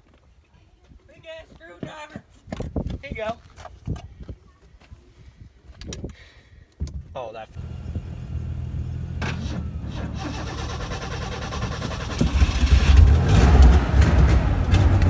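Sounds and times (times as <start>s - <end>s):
truck engine revving: 7.6s - 15.0s.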